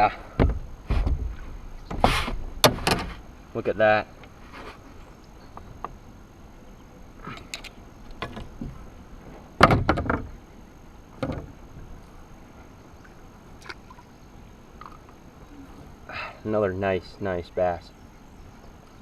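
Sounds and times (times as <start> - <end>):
short knocks and rattles: 9.6 - 10.4, 11.2 - 11.9.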